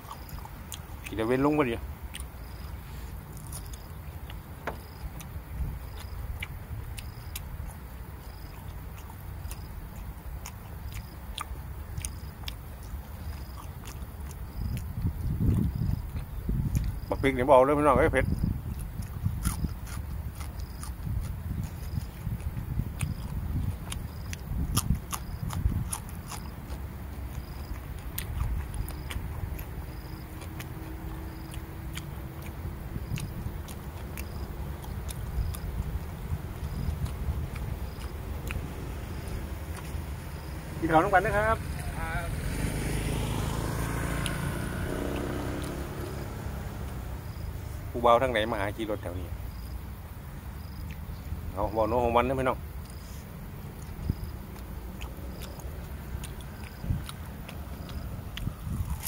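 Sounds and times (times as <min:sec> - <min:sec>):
person chewing food: 0:00.0 - 0:17.1, 0:18.6 - 0:40.6, 0:50.6 - 0:51.2, 0:52.8 - 0:59.0
wet lip smacking clicks: 0:02.1 - 0:02.7, 0:08.4 - 0:17.0, 0:18.7 - 0:36.0, 0:36.6 - 0:40.0, 0:50.8 - 0:51.1, 0:53.8 - 0:59.0.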